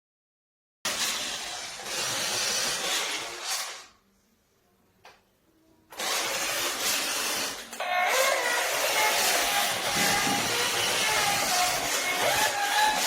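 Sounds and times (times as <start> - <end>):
toy truck electric motor whirring: 0.9 - 4.0, 5.9 - 13.0.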